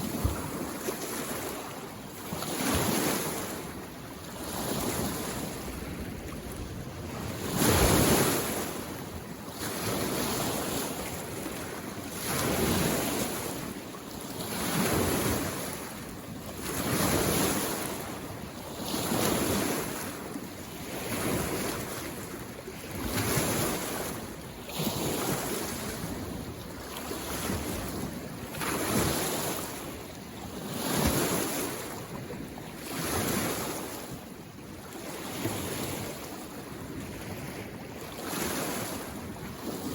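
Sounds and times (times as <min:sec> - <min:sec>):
small waves washing on shore: 0:00.0 - 0:39.9.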